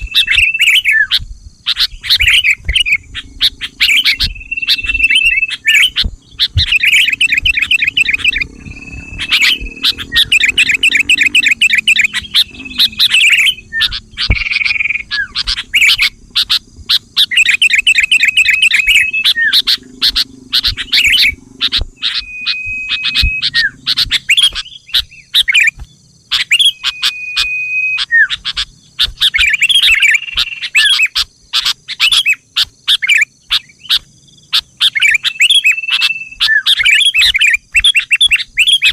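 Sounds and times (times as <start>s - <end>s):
faint high buzz: 0.0s - 29.0s
bird rapid chattering: 0.0s - 38.9s
bird whistled notes: 0.0s - 38.9s.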